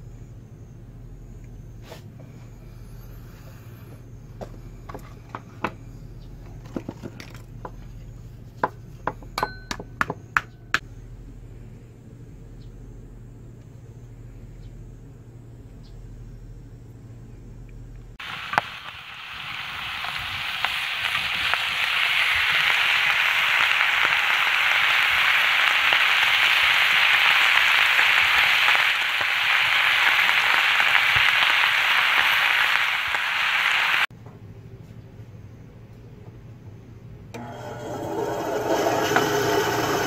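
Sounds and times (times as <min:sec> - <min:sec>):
low steady hum: 0:00.0 - 0:30.6
meat sizzling on a griddle: 0:18.2 - 0:34.1.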